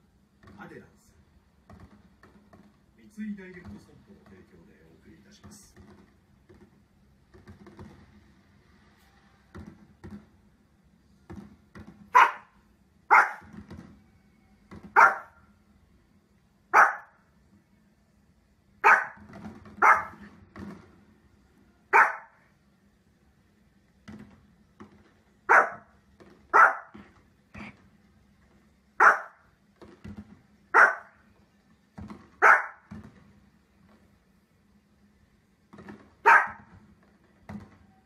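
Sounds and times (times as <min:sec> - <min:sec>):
small dog barking: 0:12.1 - 0:13.5, 0:14.9 - 0:15.4, 0:16.7 - 0:17.2, 0:18.8 - 0:19.2, 0:19.8 - 0:20.2, 0:21.9 - 0:22.4, 0:25.5 - 0:25.9, 0:26.5 - 0:27.0, 0:29.0 - 0:29.4, 0:30.7 - 0:31.2, 0:32.4 - 0:32.9, 0:36.2 - 0:36.7.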